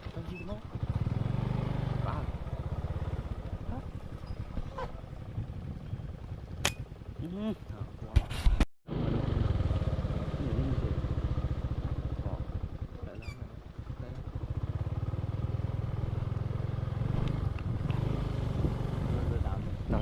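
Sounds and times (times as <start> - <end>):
small engine running: 8.9 - 12.4.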